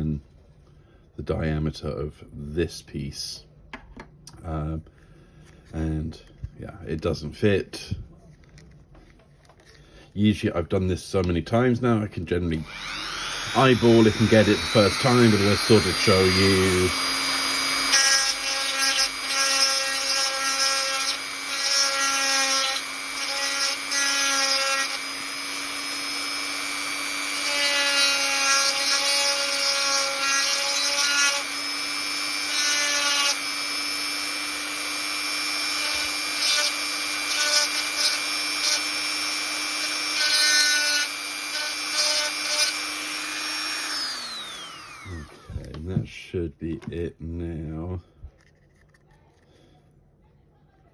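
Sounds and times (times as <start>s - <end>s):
drill bit grinding polystyrene: 12.6s - 45.8s
electric drill running: 12.6s - 45.8s.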